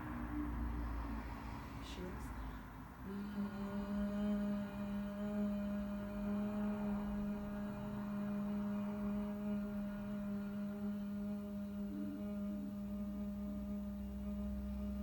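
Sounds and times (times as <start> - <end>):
person humming a steady tone: 0.0 - 15.0.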